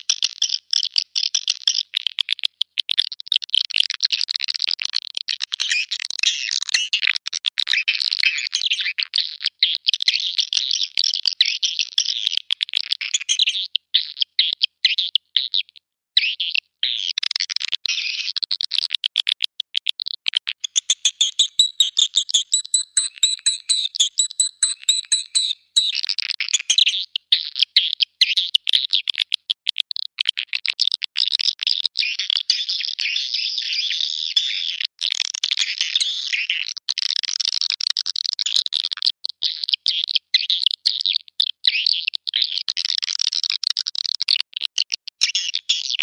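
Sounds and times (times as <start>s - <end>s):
high twittering tones: 20.6s - 26.0s
swiftlet chirps: 20.8s - 26.0s.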